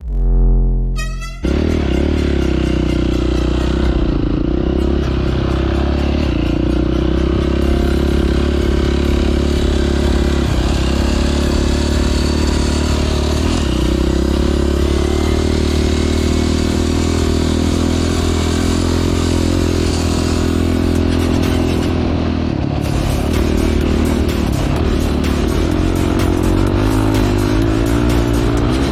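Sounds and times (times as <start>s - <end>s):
off-road vehicle engine running: 1.4s - 28.9s.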